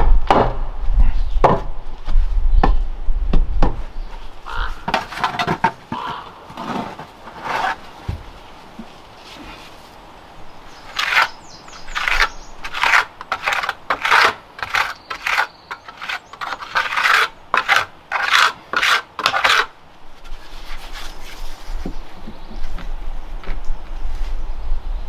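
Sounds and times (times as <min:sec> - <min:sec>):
rasping scrape strokes: 0:04.5 - 0:08.1, 0:10.8 - 0:22.1.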